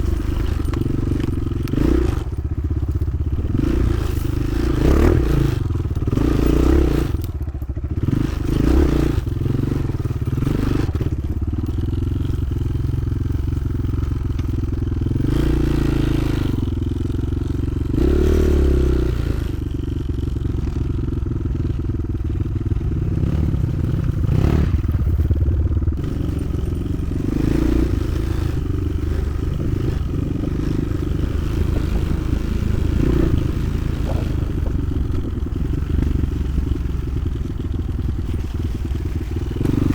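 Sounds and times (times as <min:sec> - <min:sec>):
rattling and scraping: 0:00.0 - 0:04.4, 0:24.6 - 0:39.9
motorcycle engine revving: 0:00.0 - 0:39.9.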